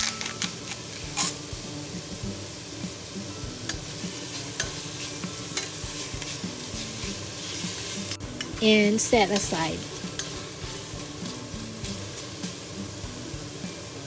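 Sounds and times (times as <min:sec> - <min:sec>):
chicken sizzling in hot oil: 0:00.0 - 0:14.0
wooden spatula scraping pot: 0:04.0 - 0:12.4.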